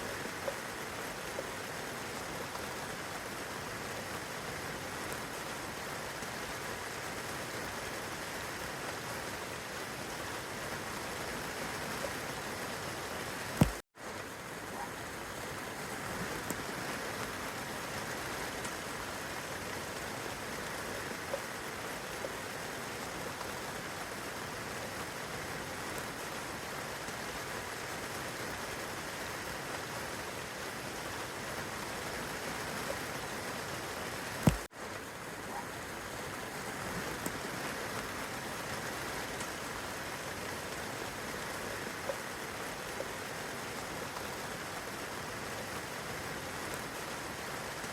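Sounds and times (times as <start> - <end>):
rain on leaves and grass: 0.0 - 47.9.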